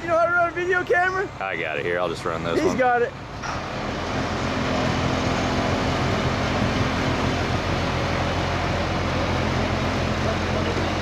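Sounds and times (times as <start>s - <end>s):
boat diesel engine droning: 0.0s - 11.0s.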